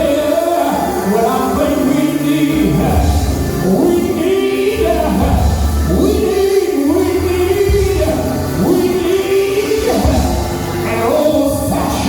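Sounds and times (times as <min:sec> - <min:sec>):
low organ bass: 0:00.0 - 0:12.0
person singing gospel: 0:00.0 - 0:12.0.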